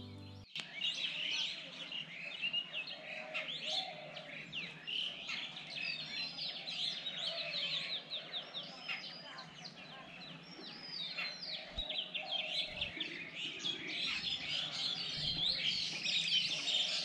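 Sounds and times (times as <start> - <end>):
music: 0.0 - 0.5
birds chirping: 0.0 - 17.0.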